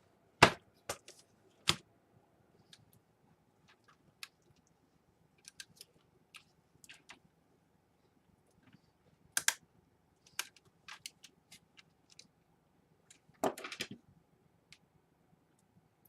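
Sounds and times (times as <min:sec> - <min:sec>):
small plastic and metal parts clicking: 0:05.4 - 0:07.2.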